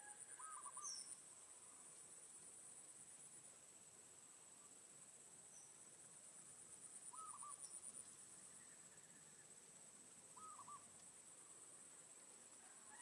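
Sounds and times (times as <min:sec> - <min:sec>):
insect trilling: 0:07.0 - 0:08.7, 0:10.3 - 0:10.9.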